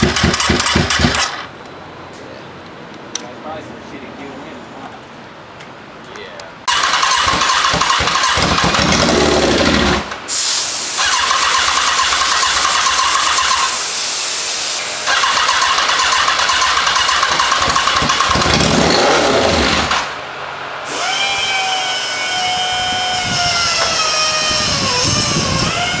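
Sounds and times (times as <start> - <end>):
engine cranking: 0.0 - 1.5, 6.7 - 10.2, 11.0 - 13.8, 15.0 - 20.2.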